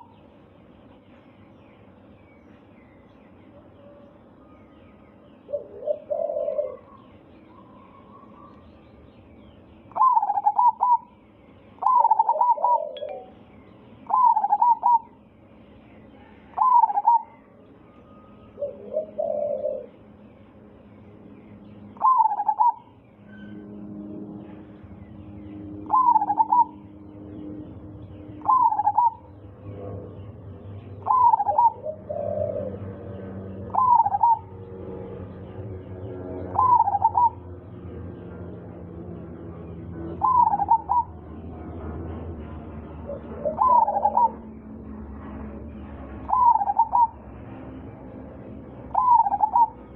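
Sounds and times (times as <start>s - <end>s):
dove cooing: 5.4s - 8.7s, 9.9s - 11.2s, 11.8s - 13.4s, 14.0s - 15.2s, 16.2s - 17.6s, 18.2s - 20.1s, 22.0s - 23.0s, 25.8s - 27.1s, 27.7s - 30.2s, 31.0s - 35.3s, 36.3s - 37.6s, 40.0s - 41.4s, 43.0s - 44.5s, 46.2s - 47.4s, 48.9s - 49.9s.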